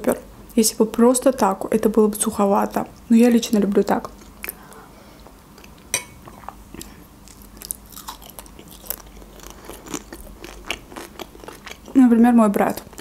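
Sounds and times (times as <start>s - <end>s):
person chewing food: 4.2s - 12.0s, 12.8s - 13.0s.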